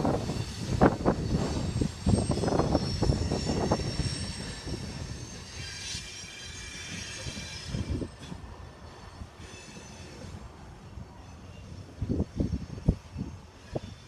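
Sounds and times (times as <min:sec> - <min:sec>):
freight train rumbling past: 0:00.0 - 0:14.0
high-pitched wheel squeal: 0:00.2 - 0:10.4.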